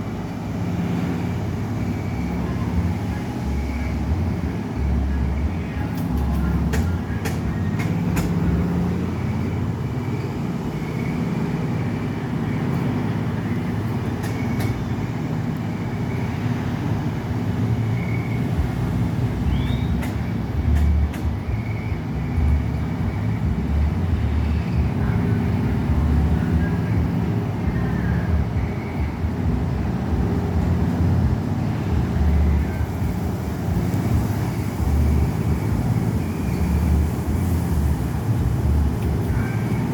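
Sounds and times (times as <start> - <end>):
machinery running with low rumble: 0.0 - 39.9.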